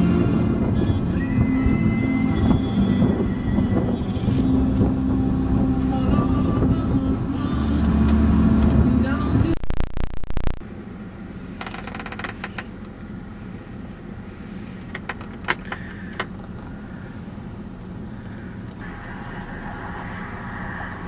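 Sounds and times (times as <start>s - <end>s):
vehicle engine and road drone: 0.0s - 21.0s
small clicks and rattles: 11.6s - 12.8s, 14.9s - 16.7s
road or wind hiss: 16.8s - 21.0s.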